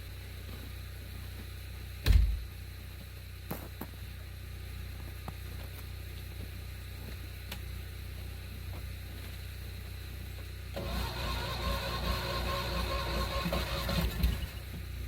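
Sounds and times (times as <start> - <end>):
vehicle engine running: 0.0 - 15.0
heavy thump: 2.0 - 2.5.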